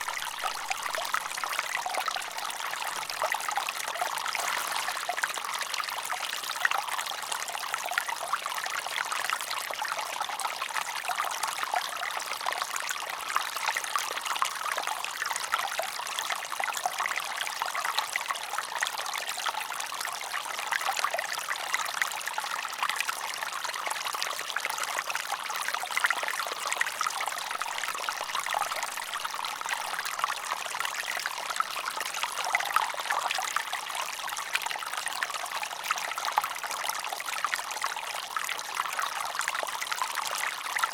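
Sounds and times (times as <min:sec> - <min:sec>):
water trickling: 0:00.0 - 0:10.1.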